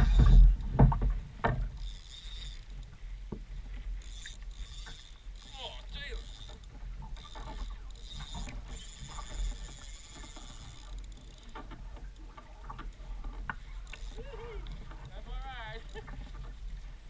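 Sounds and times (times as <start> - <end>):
fishing reel ratcheting: 1.7 - 3.0, 3.7 - 11.8, 12.8 - 16.4.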